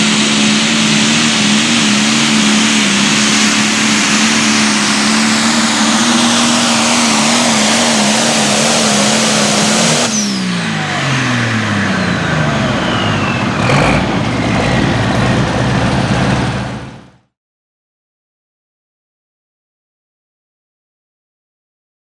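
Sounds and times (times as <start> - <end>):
turbocharger whistle: 0.0 - 17.2
diesel tractor engine: 0.0 - 17.3
low rumble: 12.7 - 17.3.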